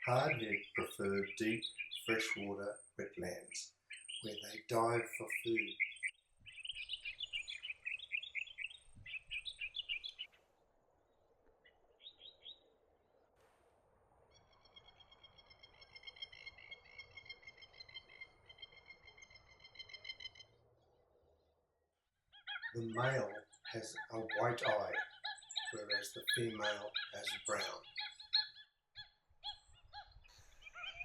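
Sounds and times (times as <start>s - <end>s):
bird chattering high notes: 0.0s - 5.8s, 22.6s - 28.4s
bird rapid trill: 0.0s - 10.4s, 14.3s - 20.6s, 22.3s - 31.0s.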